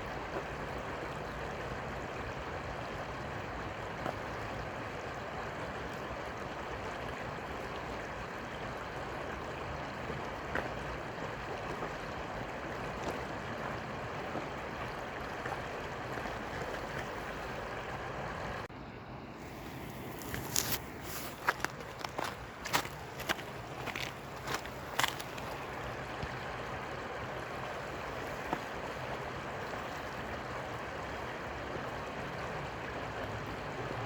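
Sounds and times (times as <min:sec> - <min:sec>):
river water rushing: 0:11.0 - 0:34.0.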